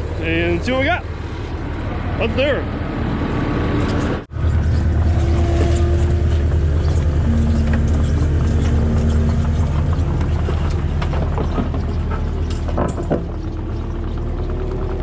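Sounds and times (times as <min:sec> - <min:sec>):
skid steer engine running: 0:00.0 - 0:15.0
faint whine: 0:05.3 - 0:10.8.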